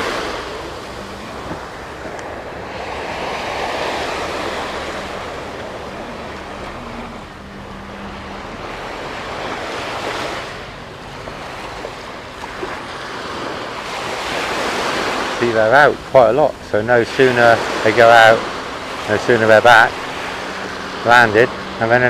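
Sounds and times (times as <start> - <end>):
sea waves breaking on beach: 0.0 - 22.0
wind buffeting microphone: 0.0 - 22.0.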